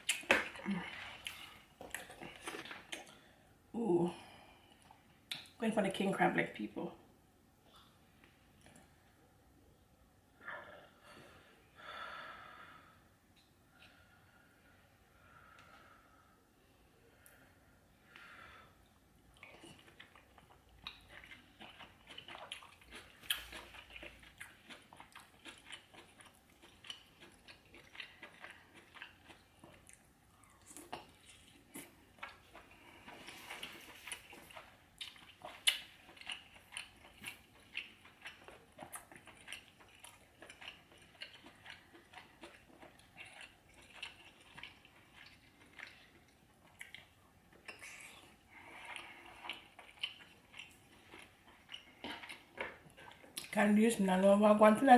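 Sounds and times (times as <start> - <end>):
chewing and wet mouth sounds: 0.0 - 3.2, 4.6 - 5.6, 7.7 - 9.2, 17.1 - 54.2.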